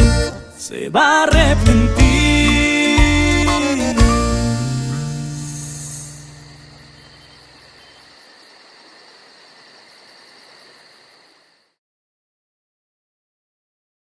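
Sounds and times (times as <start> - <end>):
crickets chirping: 5.2 - 11.8.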